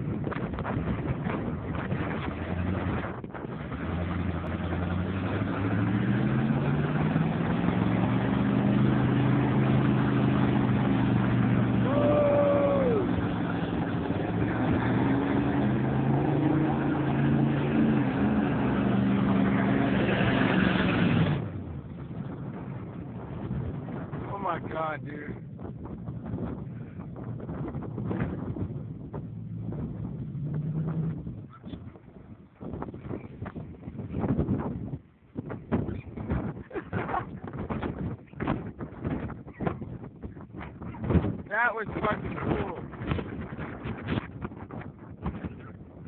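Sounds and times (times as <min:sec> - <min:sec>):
tires spinning: 0:00.0 - 0:46.0
truck engine revving: 0:01.2 - 0:25.4, 0:26.1 - 0:31.5.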